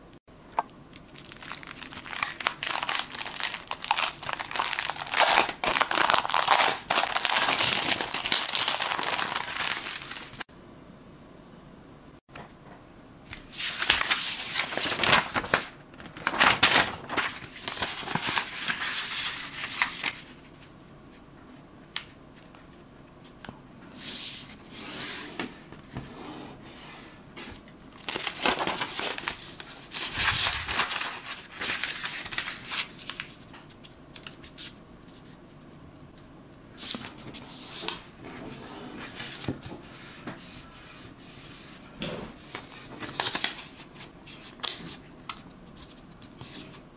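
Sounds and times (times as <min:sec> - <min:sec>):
paper crinkling and rustling: 0:01.0 - 0:10.4, 0:13.3 - 0:20.7, 0:27.4 - 0:36.2, 0:42.3 - 0:46.9.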